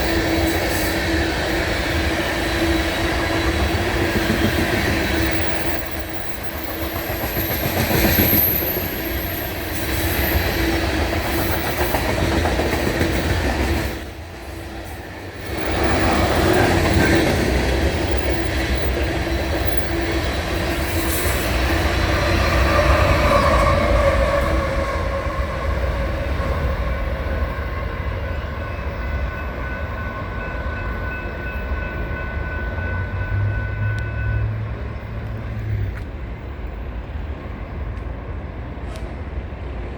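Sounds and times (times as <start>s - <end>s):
train cars rumbling past: 0.0s - 39.9s
high wheel squeal: 4.6s - 11.8s.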